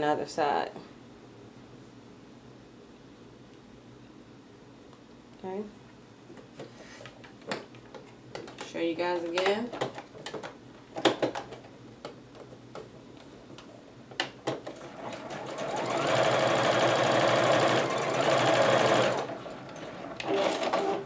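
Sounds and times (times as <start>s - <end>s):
sewing machine stitching: 14.7s - 21.0s.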